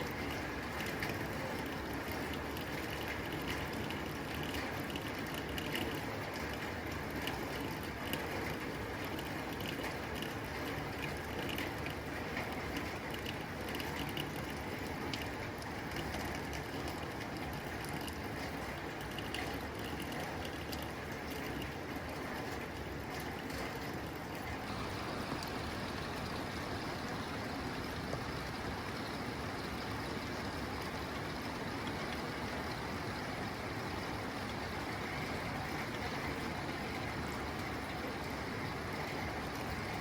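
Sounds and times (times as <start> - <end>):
rain on a tin roof: 0.0 - 40.0.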